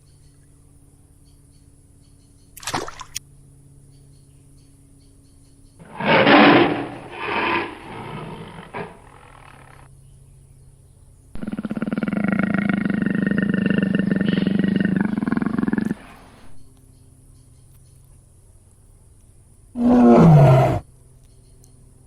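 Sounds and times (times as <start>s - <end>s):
long even animal call: 5.8s - 9.9s, 11.4s - 16.6s, 19.8s - 20.8s
wild animal call pulsing: 5.8s - 9.9s, 11.4s - 16.6s, 19.8s - 20.8s.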